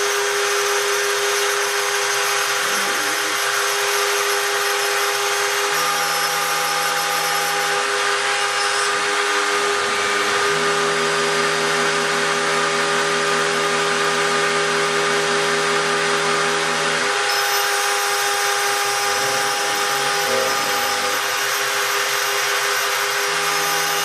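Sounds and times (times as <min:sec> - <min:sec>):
milling spindle whining: 0:00.0 - 0:11.9, 0:17.0 - 0:24.0
low machine hum: 0:16.6 - 0:22.2.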